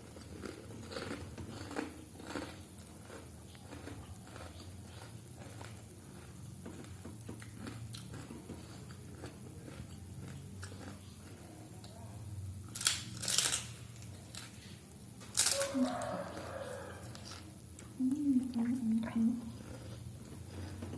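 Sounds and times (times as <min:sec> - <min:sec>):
soft chewing: 0:00.0 - 0:20.9
loud crunching bites: 0:00.1 - 0:06.2.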